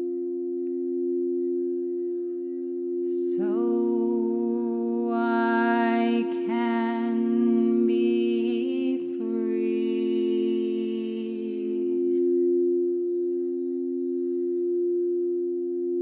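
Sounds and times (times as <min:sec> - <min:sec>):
singing bowl drone: 0:00.0 - 0:16.0
person singing wordless notes: 0:03.1 - 0:12.4.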